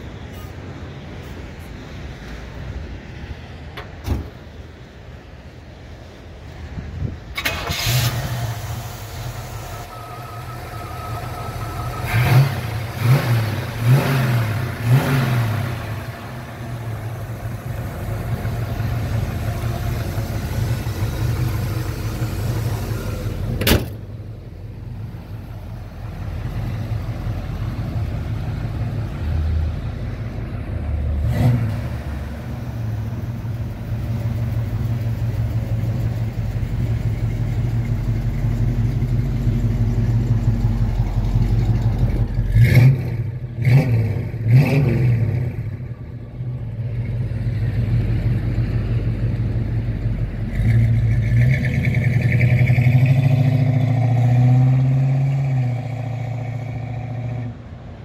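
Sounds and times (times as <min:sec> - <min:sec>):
car engine idling and revving: 0:00.0 - 0:58.0
car accelerating away: 0:07.4 - 0:23.7, 0:30.7 - 0:57.7.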